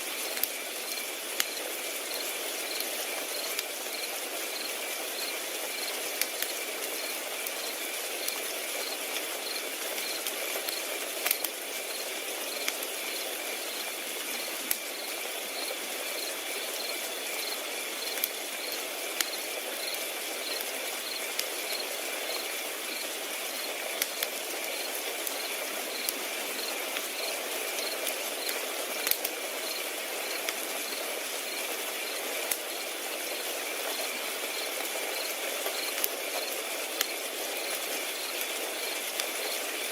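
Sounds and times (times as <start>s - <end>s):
fire crackling: 0.0s - 39.9s
crickets chirring: 0.8s - 23.8s, 24.6s - 39.6s.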